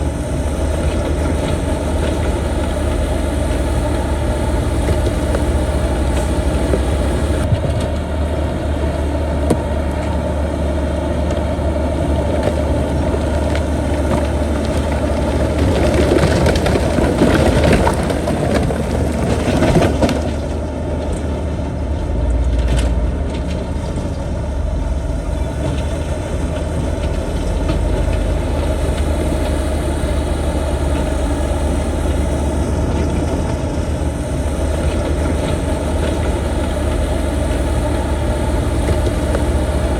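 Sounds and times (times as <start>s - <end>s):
heavy diesel machinery running: 0.0s - 39.9s
rock crushing and grinding: 12.1s - 21.2s.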